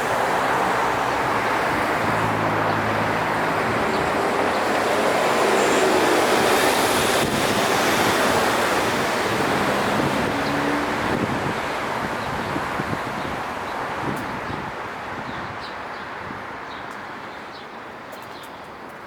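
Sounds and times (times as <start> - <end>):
low engine hum: 0.0 - 5.6
cars passing: 0.0 - 15.4.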